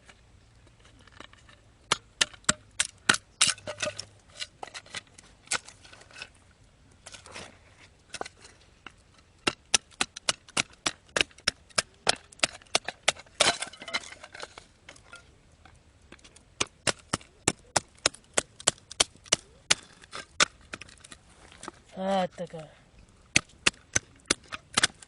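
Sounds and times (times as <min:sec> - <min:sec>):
wood splitting crack: 0:01.9 - 0:05.9, 0:08.1 - 0:15.0, 0:16.1 - 0:21.7, 0:23.3 - 0:25.0.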